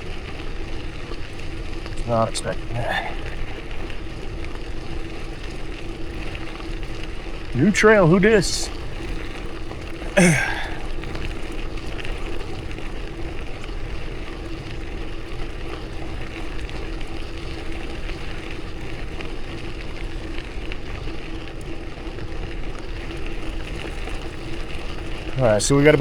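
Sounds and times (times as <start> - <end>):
bicycle tyres rolling on gravel: 0.0 - 26.0
faint steady hum: 0.0 - 26.0
short falling voice sound: 10.2 - 10.8.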